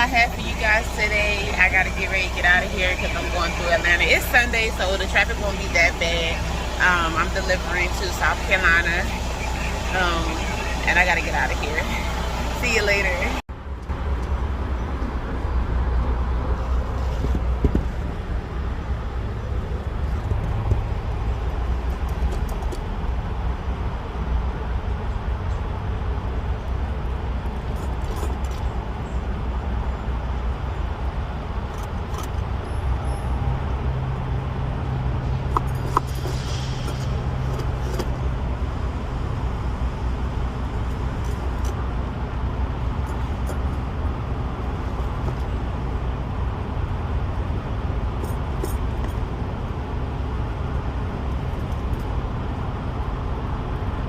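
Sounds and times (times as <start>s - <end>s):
diesel truck engine running: 0.0s - 13.7s.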